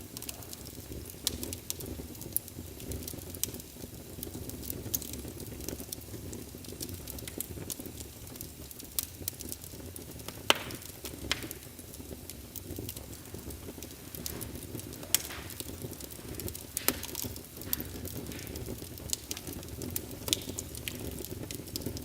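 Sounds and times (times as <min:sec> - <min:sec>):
fire rumbling: 0:00.0 - 0:22.0
wood fire crackling: 0:00.0 - 0:22.0
loud pop from fire: 0:10.3 - 0:11.9, 0:14.1 - 0:22.0.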